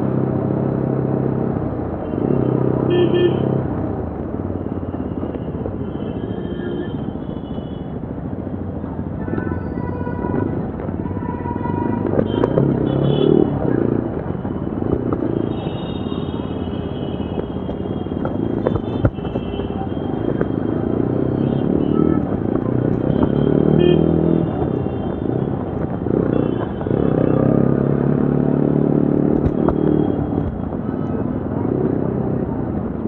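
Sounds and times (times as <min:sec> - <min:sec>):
motorcycle engine revving: 0:20.3 - 0:30.7.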